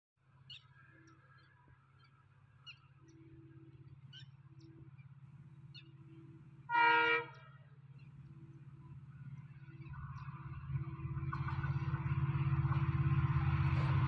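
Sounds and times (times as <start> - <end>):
faint bird chirps: 0.4 - 6.7
distant diesel locomotive rumble: 2.7 - 14.0.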